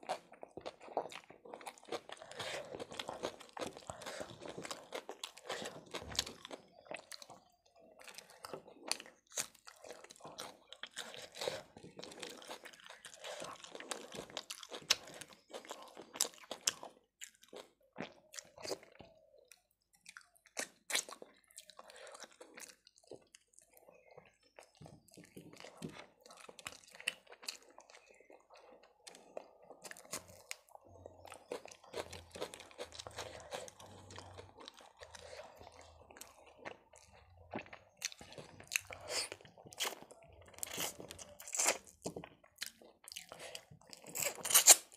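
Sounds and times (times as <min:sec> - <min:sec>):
chewing and biting food: 0:00.0 - 0:44.9.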